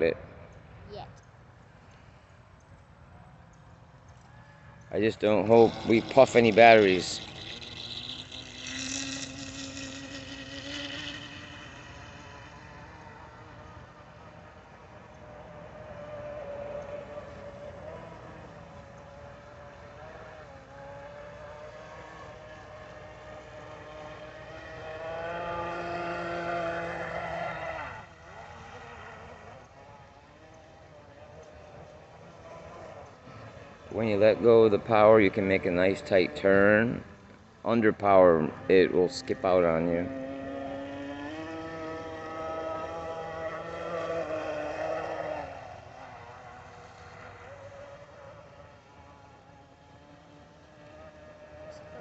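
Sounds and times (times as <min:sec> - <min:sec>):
rc boat electric motor whining: 0:04.2 - 0:52.0.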